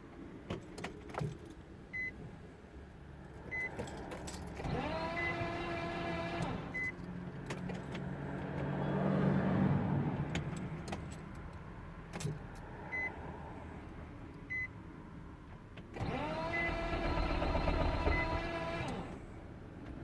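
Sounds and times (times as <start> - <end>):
starter whine: 16.0 - 19.3.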